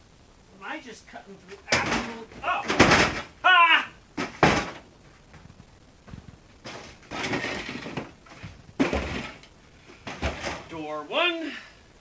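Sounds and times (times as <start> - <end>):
scraping and clattering: 1.7 - 3.4, 6.1 - 10.8.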